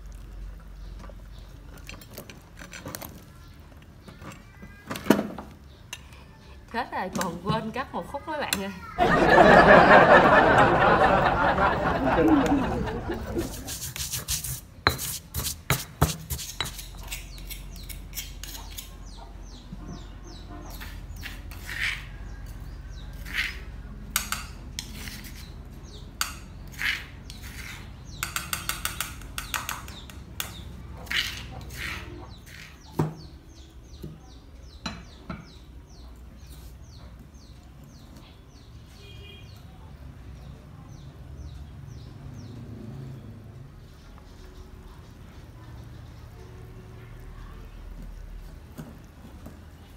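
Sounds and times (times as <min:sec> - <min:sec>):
spoon scraping and tapping mortar: 0:13.4 - 0:19.2, 0:20.7 - 0:25.6, 0:26.2 - 0:33.0
stone pestle pounding in mortar: 0:13.7 - 0:16.9.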